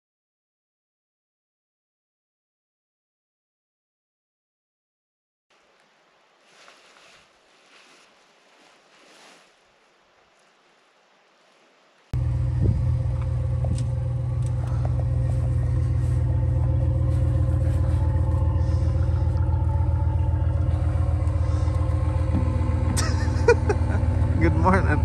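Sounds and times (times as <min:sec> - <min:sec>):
vehicle engine rumbling: 0:12.1 - 0:25.0.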